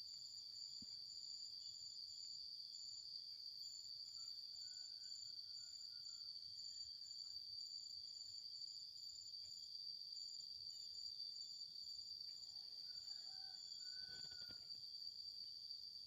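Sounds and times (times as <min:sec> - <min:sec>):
insects droning: 0:00.0 - 0:16.0
insect trill in short pulses: 0:13.0 - 0:16.0.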